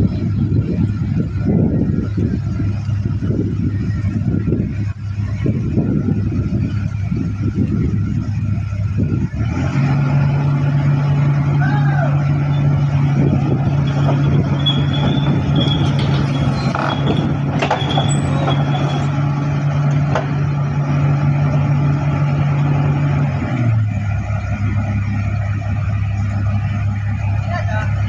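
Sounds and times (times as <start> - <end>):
heavy diesel engine running: 0.0 - 28.0
short high squeals: 13.7 - 19.2.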